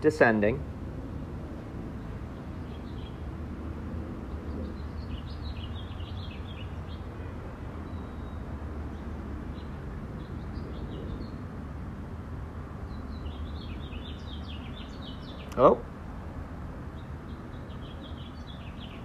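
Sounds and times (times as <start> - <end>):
small birds chirping: 1.9 - 11.6, 12.8 - 15.8, 16.8 - 19.0.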